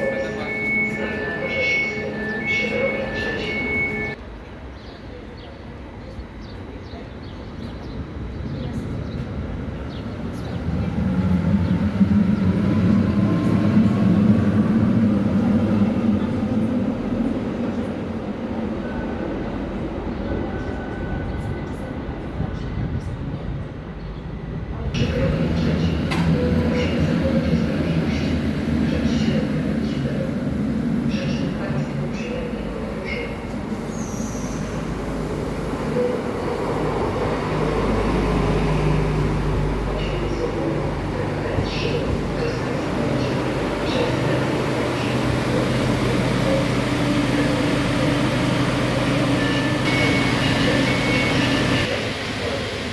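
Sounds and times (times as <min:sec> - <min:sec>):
steady high tone: 0:00.0 - 0:04.2, 0:40.0 - 0:52.1
rail vehicle rumbling: 0:00.0 - 0:52.9
train running past: 0:00.0 - 0:52.9.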